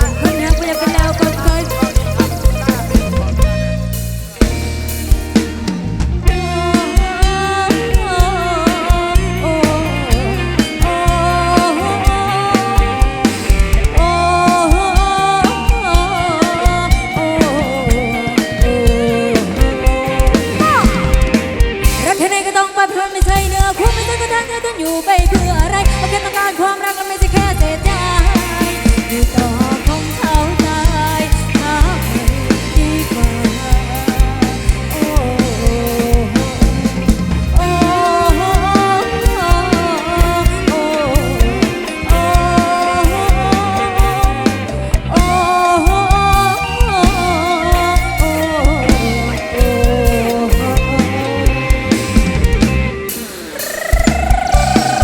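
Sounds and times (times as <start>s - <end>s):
bass line: 0.0s - 22.3s, 23.2s - 26.3s, 27.2s - 55.0s
wavering melodic lead: 0.0s - 22.6s
drum kit beat: 0.0s - 55.0s.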